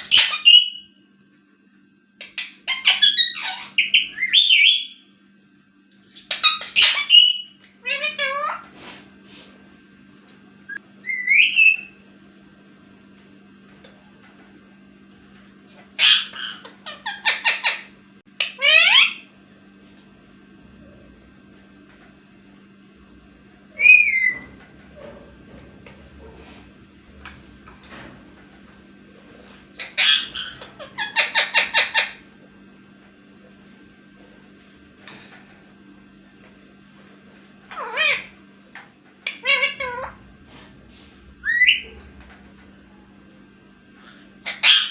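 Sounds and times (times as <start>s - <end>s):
parrot calling: 0.0s - 0.9s, 2.2s - 5.0s, 5.9s - 8.7s, 10.7s - 12.0s, 15.8s - 19.3s, 23.7s - 25.2s, 29.4s - 32.4s, 37.6s - 40.3s, 41.1s - 42.4s, 44.0s - 44.9s.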